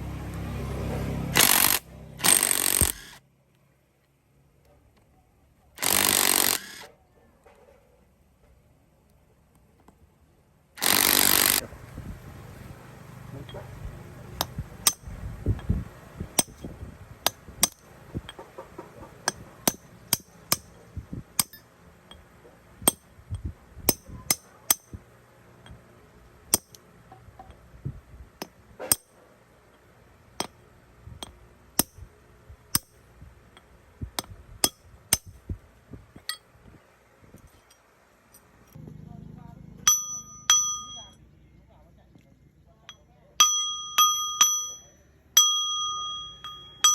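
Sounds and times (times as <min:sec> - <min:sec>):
metal tools clinking: 0:42.8 - 0:46.9.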